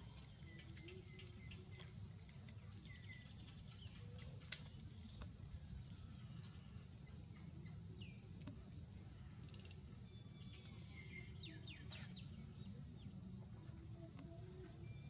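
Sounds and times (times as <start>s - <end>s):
insect hiss: 9.0s - 12.5s.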